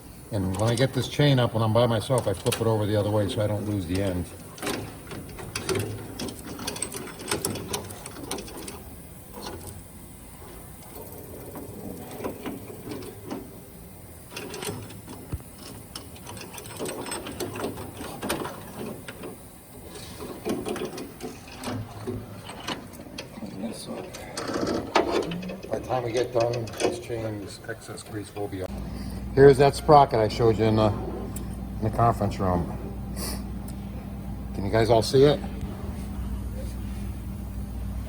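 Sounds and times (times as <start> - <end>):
metal roller chain rattling: 0.4 - 28.6.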